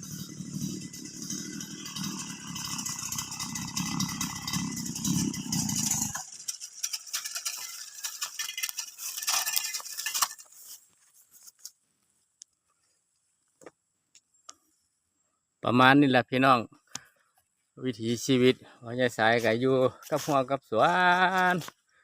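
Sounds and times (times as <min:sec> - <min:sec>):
brush cutter engine running: 0:00.0 - 0:10.8
rattling clinking noise: 0:00.0 - 0:10.8.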